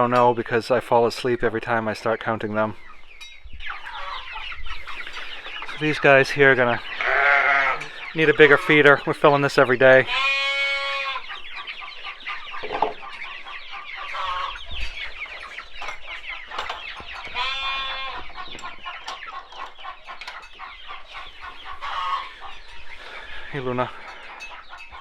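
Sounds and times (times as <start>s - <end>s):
chickens clucking and chirping: 0.0s - 25.0s
long drawn-out chicken call: 6.8s - 8.2s, 10.0s - 15.6s, 17.1s - 23.5s.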